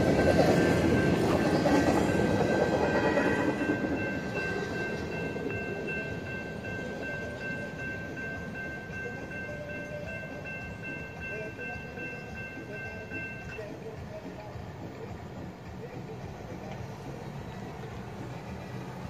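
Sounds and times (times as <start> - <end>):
crossing signal bell ringing: 0.0 - 15.1
freight train rumbling past: 0.0 - 19.0.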